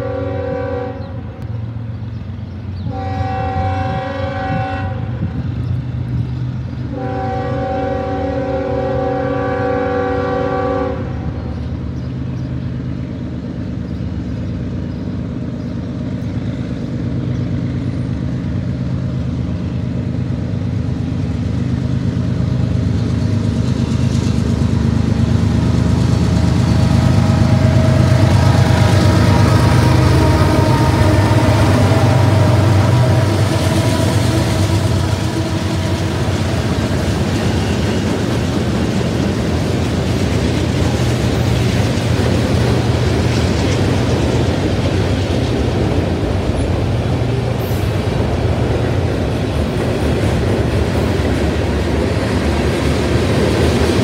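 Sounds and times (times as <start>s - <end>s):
locomotive air horn blasts: 0.0s - 1.4s, 2.9s - 5.4s, 6.9s - 11.3s, 27.4s - 36.7s
diesel locomotive engine: 0.0s - 54.0s.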